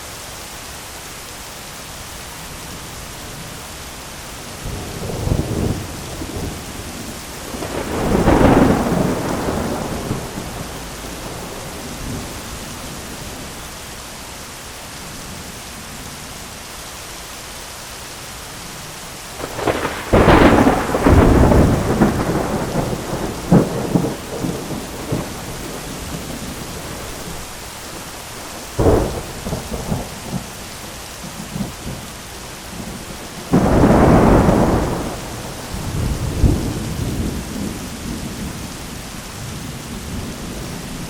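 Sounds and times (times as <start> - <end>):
rain pattering on an umbrella: 0.0 - 41.0
thunder rolling: 4.6 - 12.6, 19.4 - 27.5, 28.7 - 30.6, 32.7 - 38.7.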